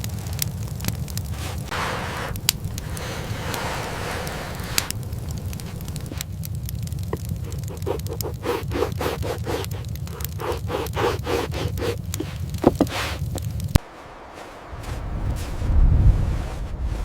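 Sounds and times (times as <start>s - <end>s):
low wind rumble: 0.0s - 17.0s
footsteps crunching in snow: 0.2s - 6.3s, 10.4s - 17.0s.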